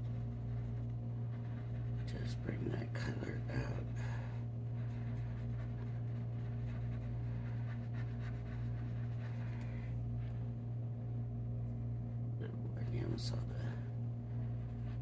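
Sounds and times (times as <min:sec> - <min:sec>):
colouring tool scratching on paper: 0:00.0 - 0:10.6, 0:14.2 - 0:15.0
low electrical hum: 0:00.0 - 0:15.0.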